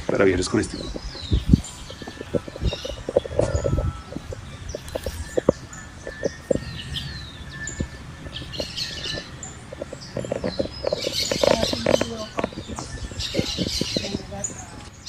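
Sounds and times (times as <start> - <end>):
birds chirping: 0.0 - 15.0
faint steady high tone: 1.1 - 10.4.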